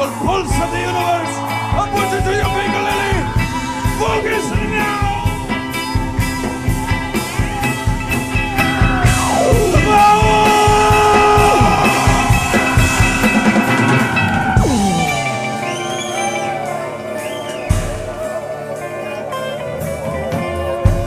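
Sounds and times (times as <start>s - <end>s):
rock band music: 0.0s - 21.0s
downward pitch slide: 9.1s - 18.0s.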